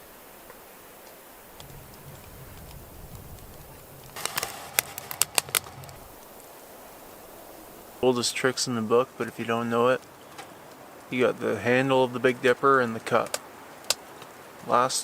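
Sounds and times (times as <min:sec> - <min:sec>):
faint hiss: 0:00.0 - 0:15.0
sharp clicks or crackles: 0:00.5 - 0:06.4, 0:13.2 - 0:14.3.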